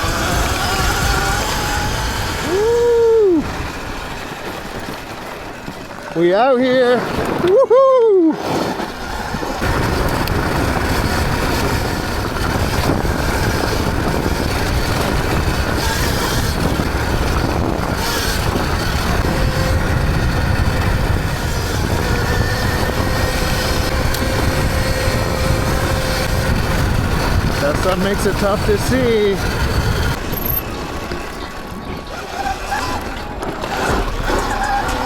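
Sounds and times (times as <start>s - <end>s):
tyre and drivetrain rumble: 0.0s - 7.7s, 8.3s - 35.0s
wind buffeting microphone: 0.0s - 35.0s.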